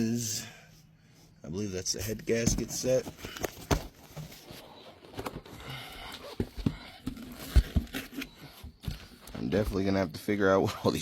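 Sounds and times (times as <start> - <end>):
packaging rustling and crinkling: 2.5 - 9.8.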